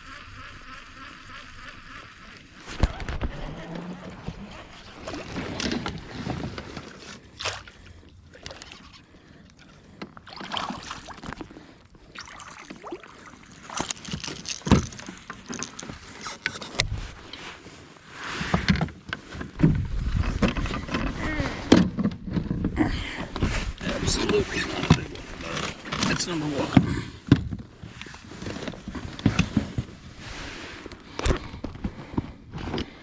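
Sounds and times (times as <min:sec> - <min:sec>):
water splashing around kayak: 0:01.5 - 0:21.2.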